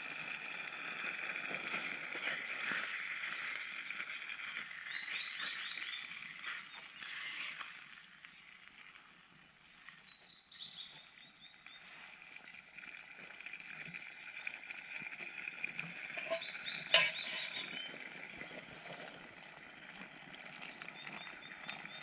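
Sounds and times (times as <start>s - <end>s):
bird chirping: 4.9s - 7.1s, 16.2s - 18.5s.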